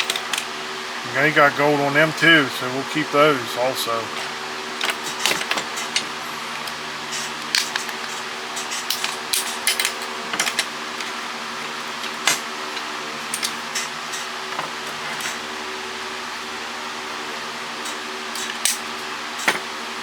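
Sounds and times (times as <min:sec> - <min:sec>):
steady hum: 0:00.9 - 0:04.7.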